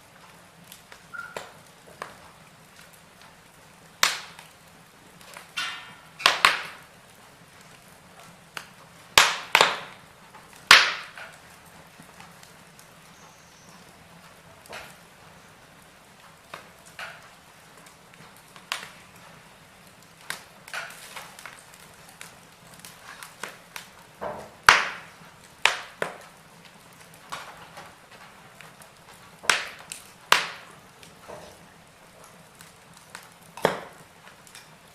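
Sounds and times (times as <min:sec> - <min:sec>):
wood fire crackling: 0:00.0 - 0:34.9
faint hiss: 0:09.9 - 0:34.9.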